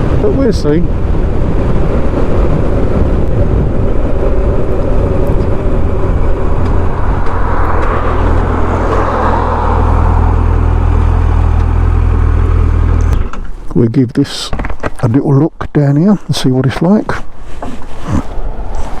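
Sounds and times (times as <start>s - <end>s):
wind and road noise: 0.0s - 19.0s
motorcycle engine running: 0.9s - 13.4s.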